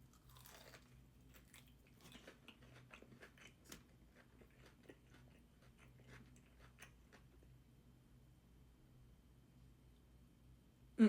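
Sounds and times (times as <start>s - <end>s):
chewing crunchy food: 0.0s - 7.6s.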